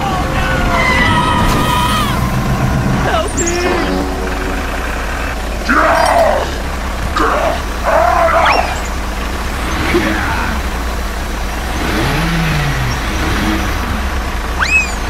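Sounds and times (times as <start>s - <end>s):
toy tractor engine sound: 0.0s - 15.0s
rising squeak: 0.5s - 6.2s, 14.6s - 15.0s.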